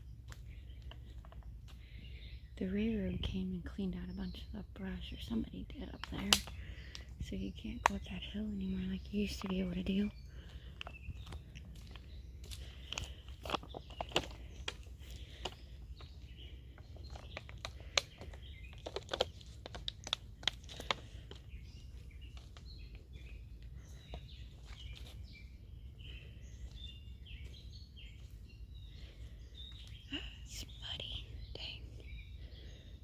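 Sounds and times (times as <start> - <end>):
small birds chirping: 0.0 - 33.0
footsteps snapping twigs: 6.0 - 7.1, 7.8 - 8.1, 10.4 - 25.3.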